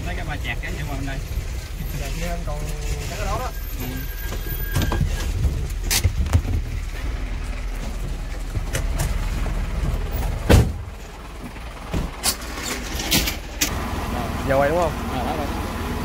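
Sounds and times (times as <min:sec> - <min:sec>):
fire engine rumbling: 0:00.0 - 0:16.0.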